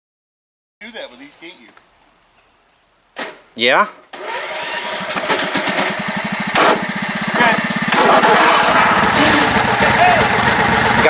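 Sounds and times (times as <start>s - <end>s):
lawn mower engine running: 4.1s - 11.0s.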